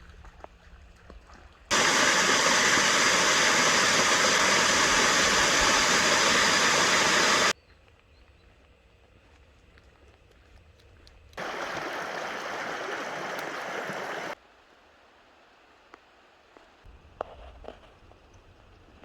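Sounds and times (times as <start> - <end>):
creek water rushing: 1.7 - 7.5, 11.4 - 14.4.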